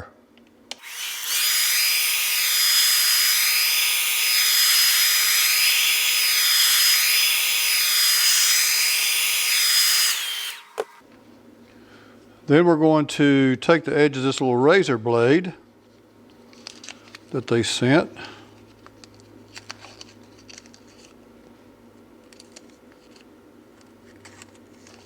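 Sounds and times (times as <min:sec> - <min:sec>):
hairdryer blowing with high whine: 0:00.7 - 0:11.0.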